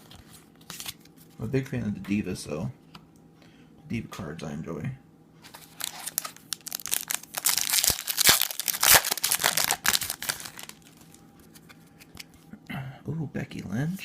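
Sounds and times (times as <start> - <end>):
wrapper tearing and crinkling: 5.5 - 11.2.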